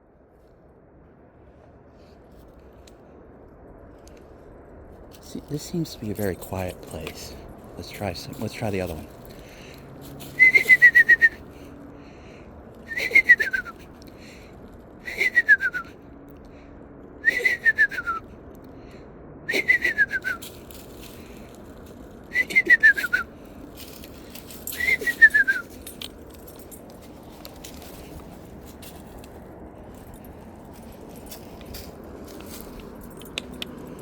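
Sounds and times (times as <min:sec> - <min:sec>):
person whistling descending whistles: 0:10.4 - 0:11.4, 0:12.9 - 0:13.8, 0:15.1 - 0:15.9, 0:17.2 - 0:18.2, 0:19.5 - 0:20.4, 0:22.3 - 0:23.3, 0:24.8 - 0:25.7.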